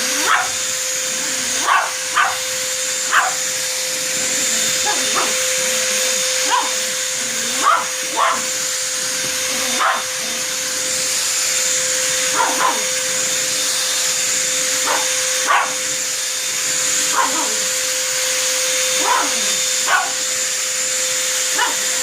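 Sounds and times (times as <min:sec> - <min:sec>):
vacuum cleaner running: 0:00.0 - 0:22.0
dog barking: 0:00.2 - 0:00.6, 0:01.6 - 0:02.4, 0:03.1 - 0:03.4, 0:04.8 - 0:05.4, 0:06.4 - 0:08.5, 0:09.6 - 0:10.1, 0:12.3 - 0:12.9, 0:14.8 - 0:15.8, 0:17.1 - 0:17.7, 0:19.0 - 0:20.2, 0:21.5 - 0:22.0.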